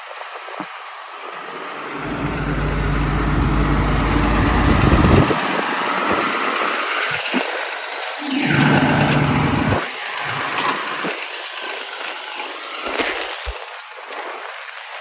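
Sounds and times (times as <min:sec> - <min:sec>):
excavator diesel engine running: 0:01.8 - 0:05.4, 0:08.2 - 0:09.8.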